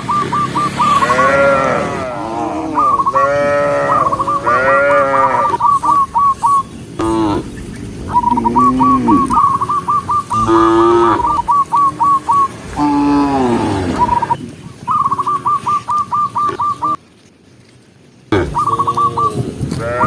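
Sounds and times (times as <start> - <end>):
cows mooing: 0.8 - 6.0, 7.0 - 14.4, 18.3 - 20.0.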